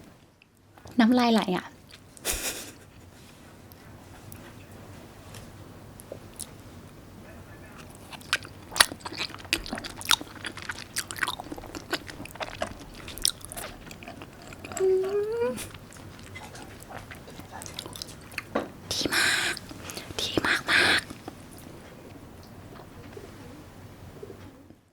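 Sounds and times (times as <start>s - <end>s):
wet chewing mouth clicks: 7.8s - 21.7s
person humming: 14.7s - 15.7s.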